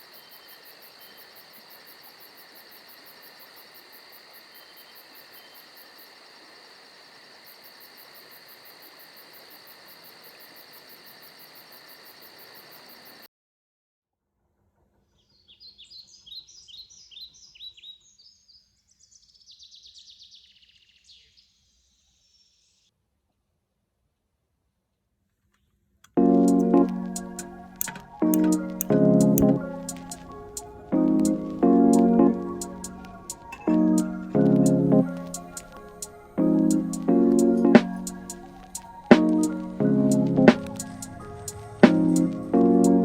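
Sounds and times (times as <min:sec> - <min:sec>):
insects pulsing trill: 0:00.0 - 0:13.3, 0:26.3 - 0:43.0.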